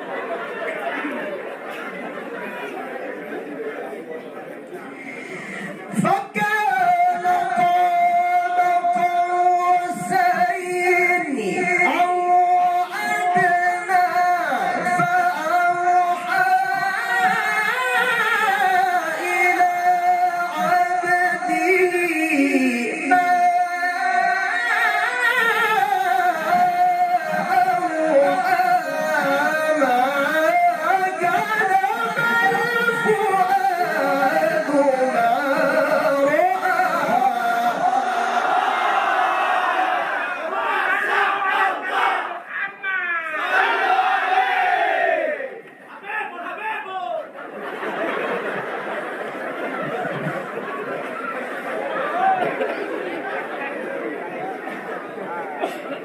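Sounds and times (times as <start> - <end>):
man reciting melodically: 4.9 - 38.9.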